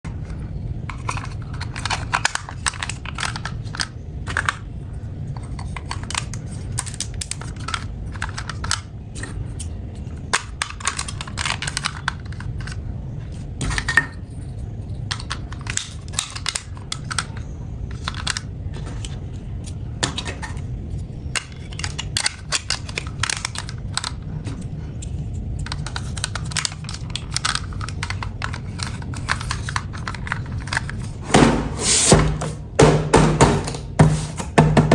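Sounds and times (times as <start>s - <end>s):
steady low hum: 0.0s - 34.9s
plastic toy pieces clicking: 0.9s - 4.6s, 5.3s - 12.8s, 15.1s - 19.2s, 21.3s - 31.2s.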